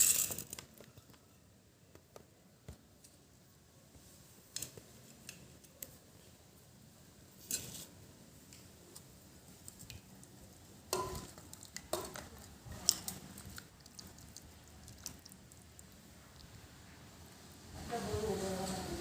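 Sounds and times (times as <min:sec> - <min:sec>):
soft eating mouth sounds: 0:11.2 - 0:17.0.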